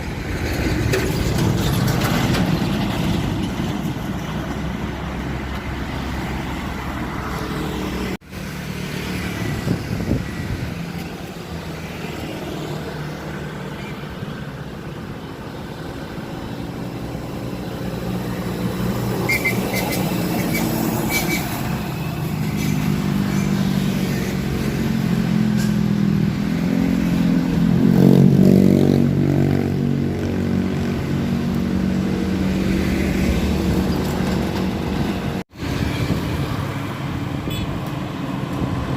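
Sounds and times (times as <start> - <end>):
road traffic: 0.0 - 38.9.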